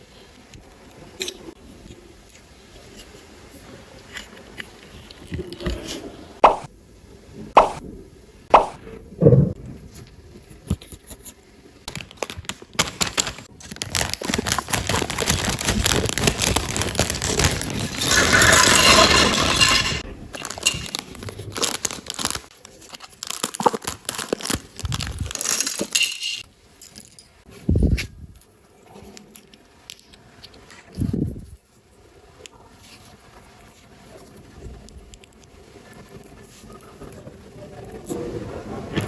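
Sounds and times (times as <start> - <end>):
packaging crinkling: 11.9 - 26.4
plastic pieces clicking: 11.9 - 26.4.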